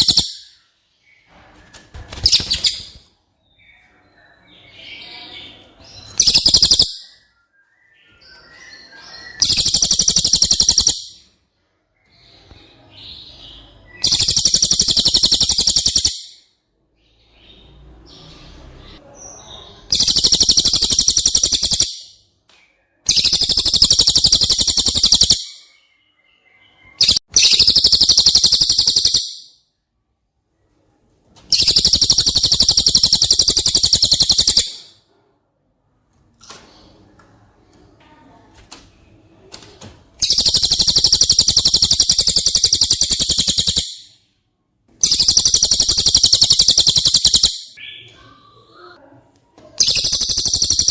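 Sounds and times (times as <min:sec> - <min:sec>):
songbird rattling trill: 0:00.0 - 0:00.5, 0:06.2 - 0:07.0, 0:09.4 - 0:11.2, 0:14.0 - 0:16.3, 0:19.9 - 0:22.1, 0:23.1 - 0:25.6, 0:27.0 - 0:29.5, 0:31.5 - 0:34.9, 0:40.2 - 0:44.1, 0:45.0 - 0:47.8, 0:49.8 - 0:50.9.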